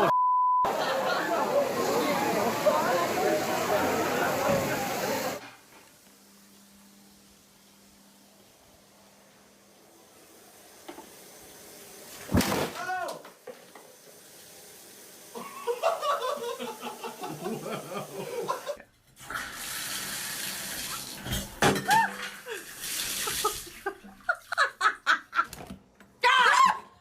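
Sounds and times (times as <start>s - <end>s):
people laughing: 0.0s - 5.4s, 15.4s - 18.9s, 21.9s - 25.6s
voices: 0.0s - 5.4s
water rushing: 0.7s - 5.4s.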